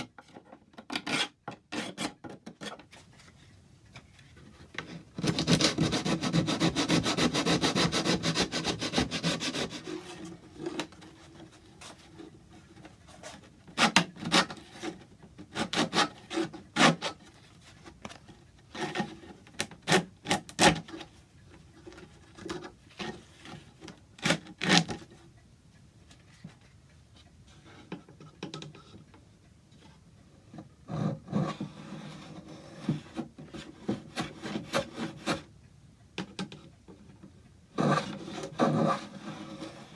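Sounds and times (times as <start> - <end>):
hand tool rubbing on wood: 5.3 - 10.3.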